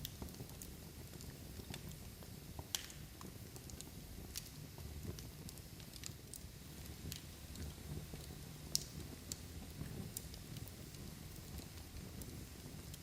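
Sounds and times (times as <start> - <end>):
log fire crackling and popping: 0.0 - 13.0.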